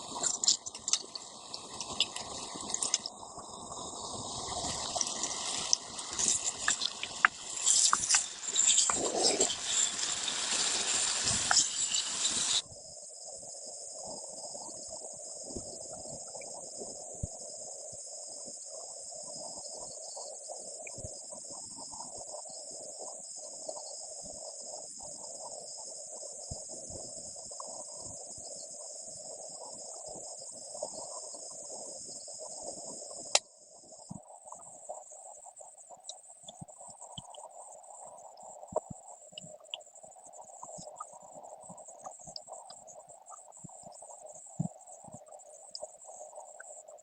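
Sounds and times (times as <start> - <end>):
crickets chirping: 0.0 - 47.0
lower insect chorus: 0.0 - 47.0
loud hiss: 1.3 - 12.6.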